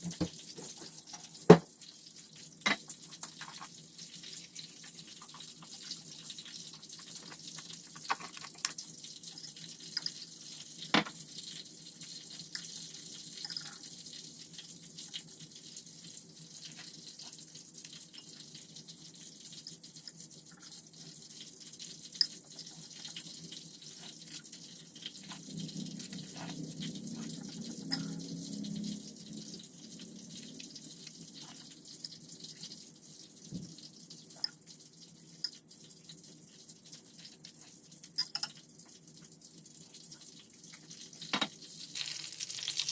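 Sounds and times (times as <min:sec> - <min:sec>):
water running from tap into sink: 0:00.0 - 0:42.9
clinks of things handled in water: 0:38.2 - 0:38.6.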